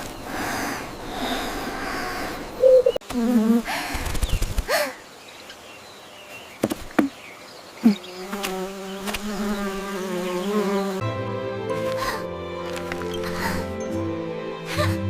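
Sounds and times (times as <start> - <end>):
insect-like buzz: 0.0 - 4.7, 7.8 - 11.0.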